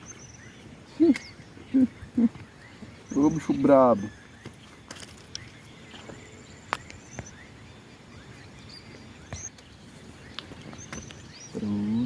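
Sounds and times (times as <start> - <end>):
bird chirps: 0.0 - 12.0.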